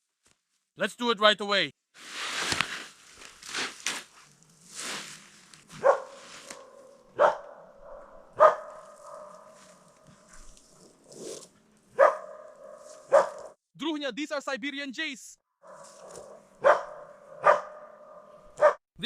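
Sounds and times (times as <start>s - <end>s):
dog barking: 5.8s - 9.8s, 12.0s - 13.6s, 15.6s - 18.8s.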